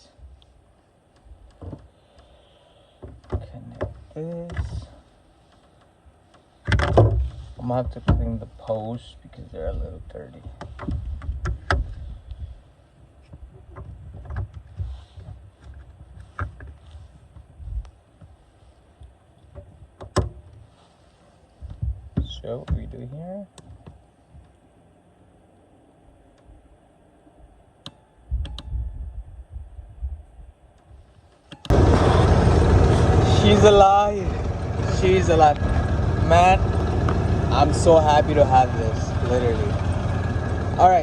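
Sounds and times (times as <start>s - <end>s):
sharp clicks and knocks: 1.1s - 2.3s, 3.0s - 4.8s, 5.5s - 8.3s, 10.4s - 12.0s, 19.5s - 20.6s
engine cranking: 31.7s - 41.0s
low uneven rumbling: 31.7s - 41.0s
van engine running: 31.7s - 41.0s.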